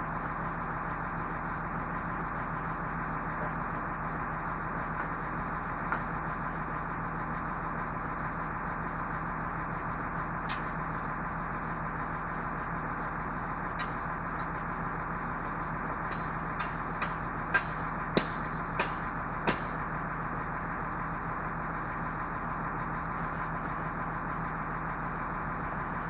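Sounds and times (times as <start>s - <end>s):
truck engine idling: 0.0s - 26.0s
sharp clicks and knocks: 13.8s - 14.1s, 16.1s - 19.8s.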